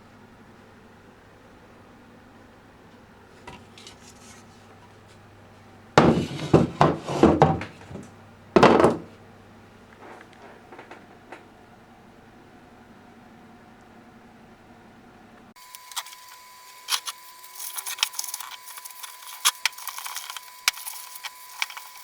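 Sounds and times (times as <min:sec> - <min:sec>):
metal parts clattering: 0:15.7 - 0:22.0.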